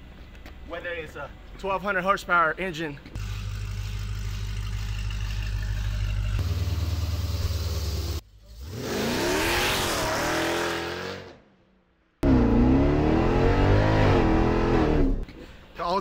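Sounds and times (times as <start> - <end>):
engine idling and revving: 3.2 - 11.3, 12.2 - 15.3.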